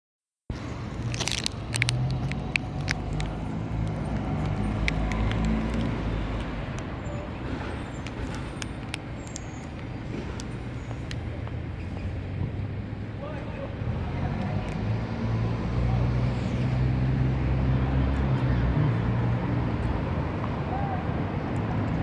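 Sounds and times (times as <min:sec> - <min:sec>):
sharp clicks and crackles: 0:00.5 - 0:12.2, 0:14.3 - 0:15.0
low urban rumble: 0:00.5 - 0:22.0.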